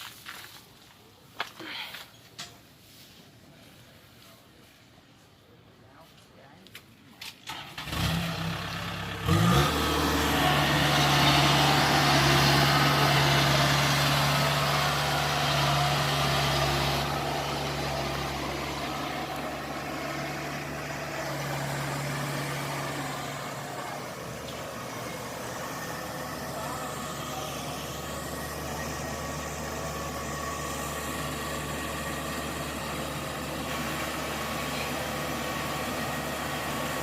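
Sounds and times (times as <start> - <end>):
diesel engine running: 7.5 - 37.0.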